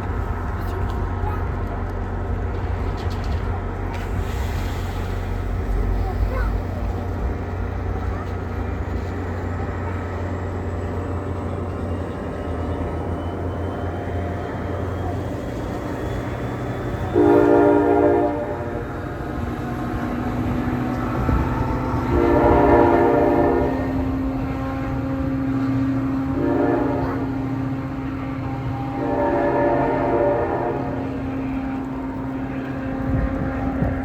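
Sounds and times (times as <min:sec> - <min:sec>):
train passing with low rumble: 0:00.0 - 0:34.0
train horn blasts: 0:17.0 - 0:34.0.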